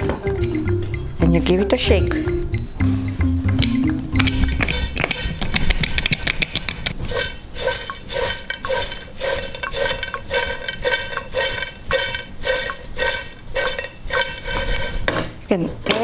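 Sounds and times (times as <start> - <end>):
popcorn rattling in shaken metal pot: 4.0 - 16.0.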